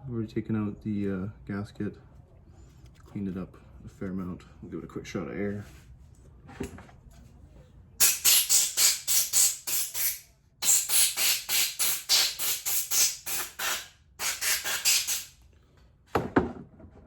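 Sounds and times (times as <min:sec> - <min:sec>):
compressed air bursts: 0:08.0 - 0:15.4.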